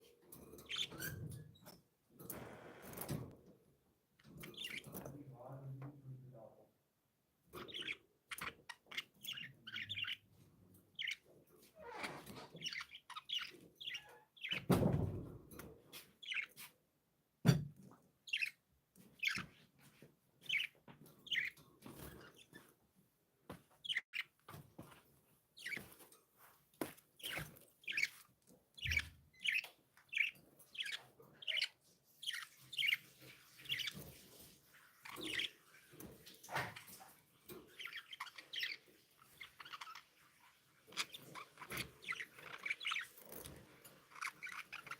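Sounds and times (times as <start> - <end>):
budgerigars chirping: 0.6 - 1.2, 4.2 - 4.9, 7.6 - 11.3, 12.0 - 14.7, 16.2 - 16.7, 18.3 - 19.6, 20.4 - 22.6, 23.8 - 24.4, 25.6 - 25.9, 27.2 - 28.2, 28.8 - 34.2, 35.0 - 35.7, 36.5 - 44.9.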